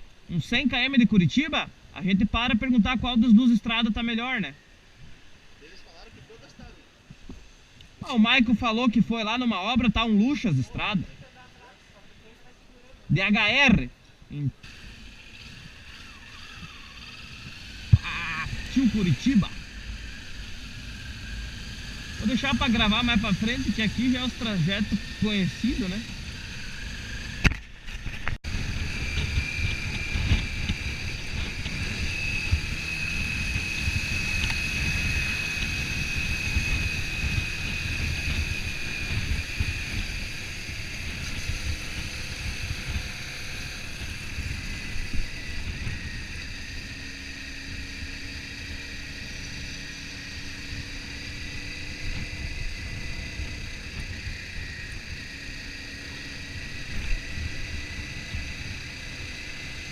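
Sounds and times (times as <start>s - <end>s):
faint high whine: 0.0s - 59.9s
motorcycle engine cruising: 14.5s - 59.9s
wind buffeting microphone: 24.8s - 59.9s.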